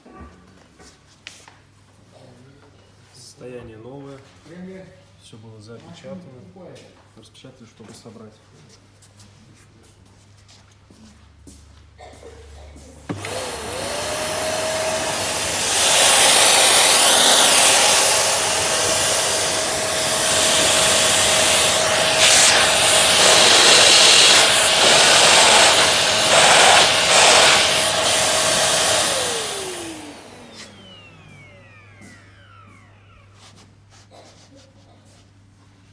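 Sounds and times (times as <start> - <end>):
vacuum cleaner motor whine: 13.0 - 34.5.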